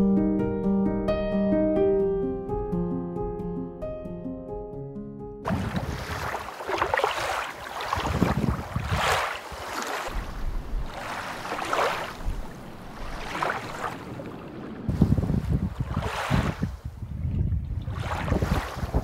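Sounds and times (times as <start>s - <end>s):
sea water rushing along hull: 5.5s - 17.0s, 17.7s - 19.0s
wind on microphone: 5.5s - 19.0s.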